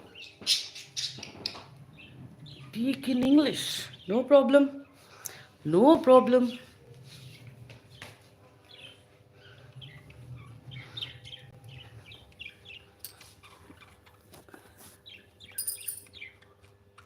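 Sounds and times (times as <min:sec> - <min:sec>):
small parrots chirping: 0:00.0 - 0:02.7.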